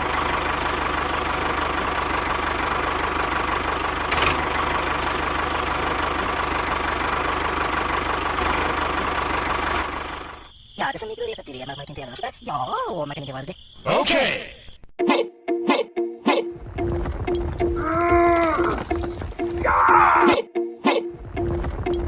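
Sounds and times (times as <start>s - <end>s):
small tractor engine running: 0.0s - 10.5s, 16.6s - 19.6s, 21.2s - 22.0s.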